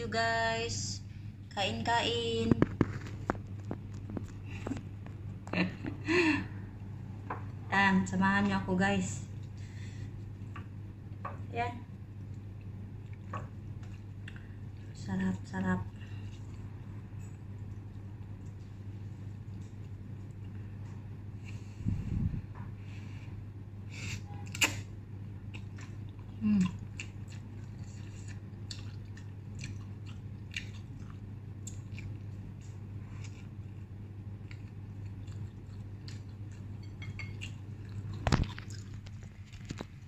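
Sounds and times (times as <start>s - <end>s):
low hum: 0.0s - 40.0s
person chewing noodles: 12.2s - 14.9s, 24.4s - 40.0s.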